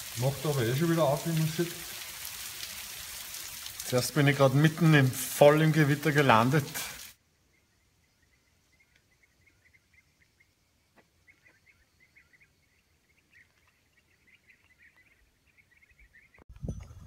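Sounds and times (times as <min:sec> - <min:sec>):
small birds chirping: 0:07.4 - 0:16.4.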